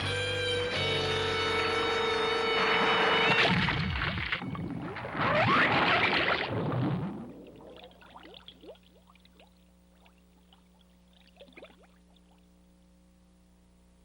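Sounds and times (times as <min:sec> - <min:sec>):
low steady hum: 0:00.0 - 0:14.0
loud rushing water splash: 0:02.8 - 0:07.4
faint water bubbling: 0:03.6 - 0:12.7.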